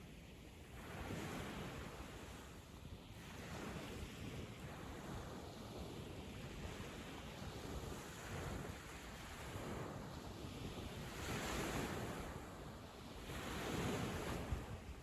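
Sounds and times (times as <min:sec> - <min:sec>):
sea waves breaking on beach: 0:03.2 - 0:15.0.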